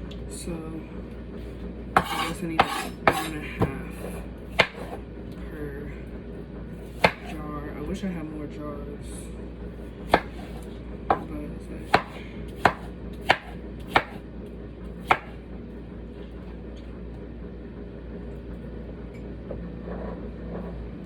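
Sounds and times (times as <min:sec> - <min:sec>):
knife chopping on cutting board: 0:02.0 - 0:05.0, 0:06.8 - 0:07.4, 0:10.1 - 0:14.2, 0:15.0 - 0:15.4.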